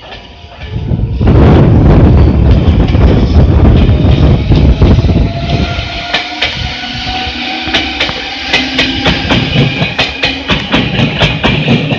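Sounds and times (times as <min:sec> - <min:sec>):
electric train running rumble: 0:00.0 - 0:11.9.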